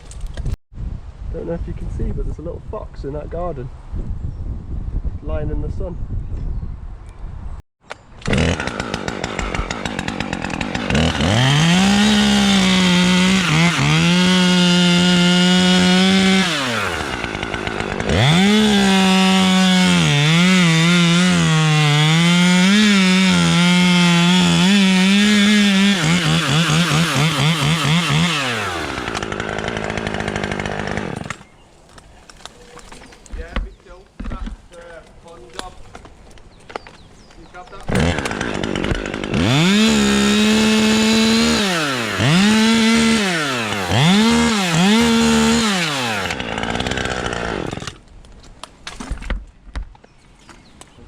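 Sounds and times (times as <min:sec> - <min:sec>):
chainsaw cutting wood: 0:07.9 - 0:31.6, 0:37.7 - 0:48.1.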